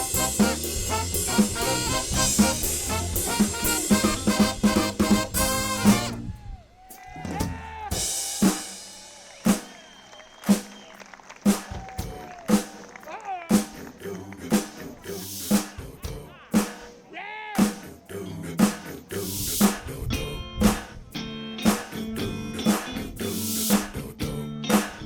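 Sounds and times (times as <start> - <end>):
drum kit slow beat: 0.0 - 10.8, 11.4 - 18.0, 18.6 - 25.0
live band with horns: 0.0 - 15.8
people whooping: 5.8 - 13.7.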